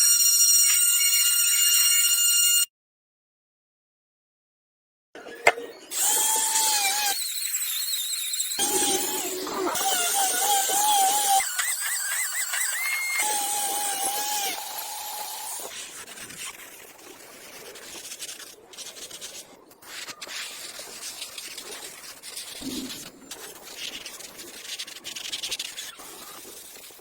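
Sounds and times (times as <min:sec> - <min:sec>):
short squeal: 0:06.3 - 0:14.6
hand rubbing and scraping: 0:15.6 - 0:27.0.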